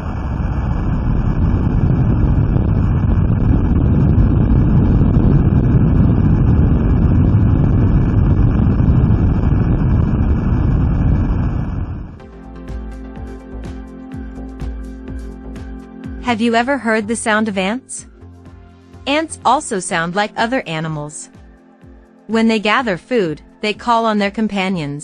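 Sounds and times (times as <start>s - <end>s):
deep underwater earthquake rumble: 0.0s - 12.2s.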